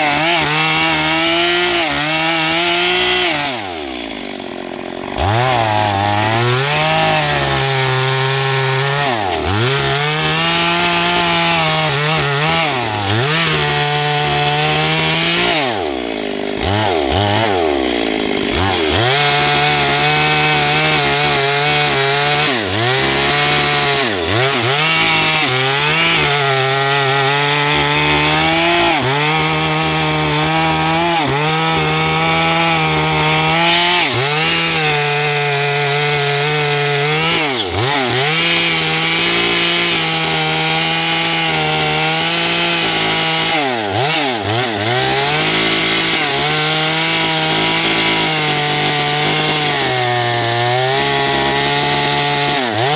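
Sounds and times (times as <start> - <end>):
chainsaw cutting wood: 0.0 - 52.9.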